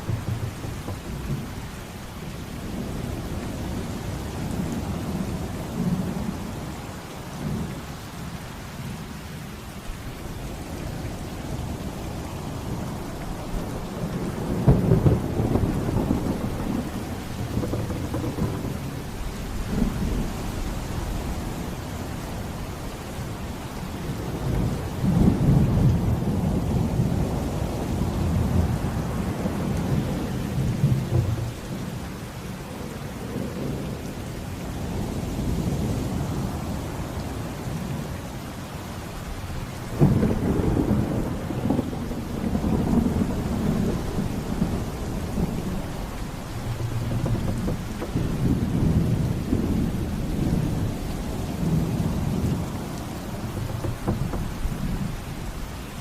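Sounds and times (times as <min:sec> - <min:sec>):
sharp thunderclap: 0:00.0 - 0:02.2, 0:14.0 - 0:21.1, 0:29.9 - 0:32.0, 0:39.4 - 0:55.6
rolling low thunder: 0:00.0 - 0:06.7, 0:10.3 - 0:22.6, 0:23.6 - 0:32.3, 0:39.2 - 0:56.0
heavy rain falling: 0:00.0 - 0:56.0.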